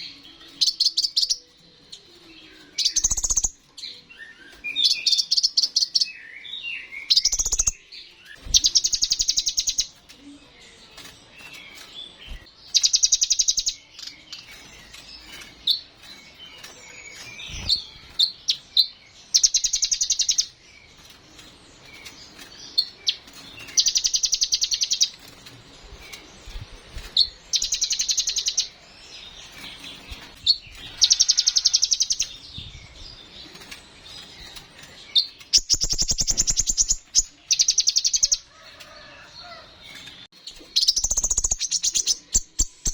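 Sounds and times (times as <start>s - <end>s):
bird chirps and twitters: 0.0s - 42.9s
bird high rapid trill: 35.2s - 38.4s.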